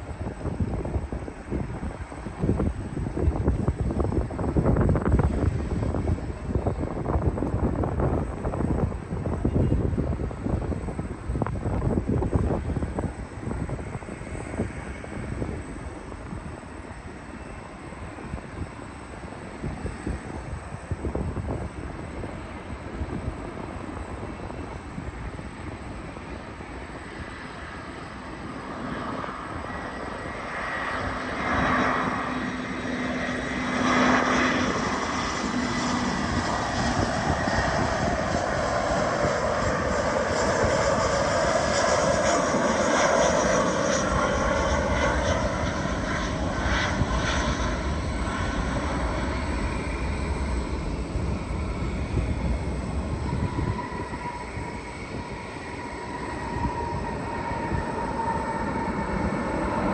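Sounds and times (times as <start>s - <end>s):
jet airliner engines roaring: 0.0s - 59.9s.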